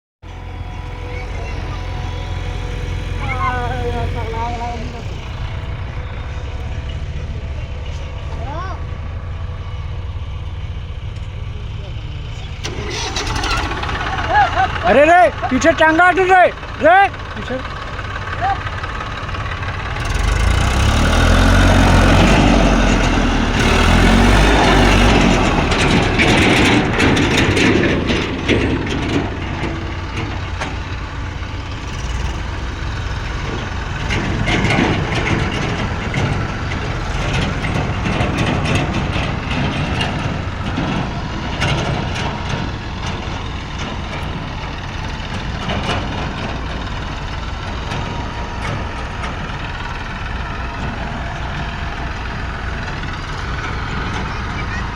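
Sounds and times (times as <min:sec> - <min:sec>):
diesel engines running: 0:00.2 - 0:54.9
clanks and knocks: 0:18.9 - 0:54.9.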